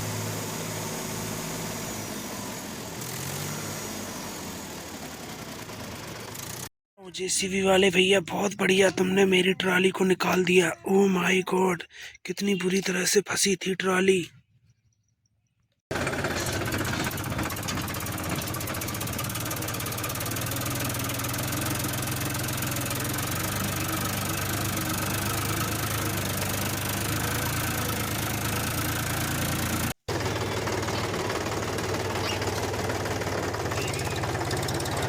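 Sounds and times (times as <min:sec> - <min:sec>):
engine running steadily: 0:00.0 - 0:06.7, 0:15.9 - 0:35.0.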